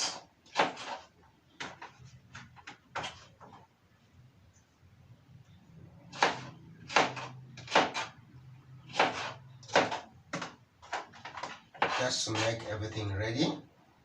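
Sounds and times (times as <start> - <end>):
knife chopping on cutting board: 0.1 - 3.3, 6.1 - 8.2, 8.9 - 12.7
faint low hum: 3.4 - 10.8.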